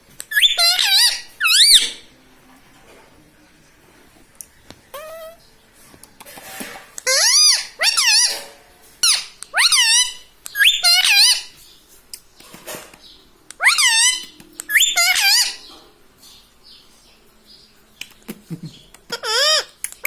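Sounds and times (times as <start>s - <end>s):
parakeet shrill calls: 0.3s - 2.0s, 4.9s - 5.4s, 7.0s - 8.4s, 9.0s - 11.6s, 13.6s - 15.8s, 19.1s - 19.8s.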